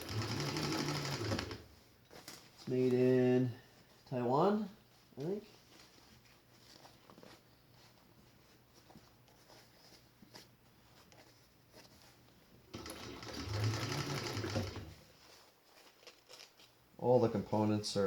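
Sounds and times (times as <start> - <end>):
sewing machine stitching: 0.0 - 1.7, 12.7 - 15.0.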